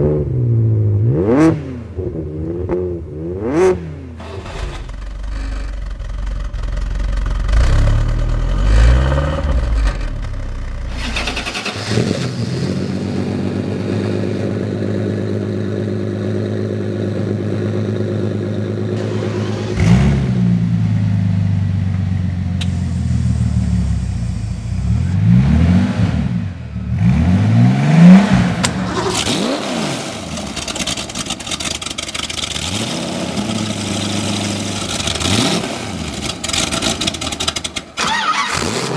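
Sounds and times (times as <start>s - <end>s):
car engines revving: 0.0s - 5.6s, 7.3s - 38.9s
car engine idling: 4.2s - 8.6s, 12.6s - 25.2s, 30.2s - 35.3s, 36.0s - 38.5s.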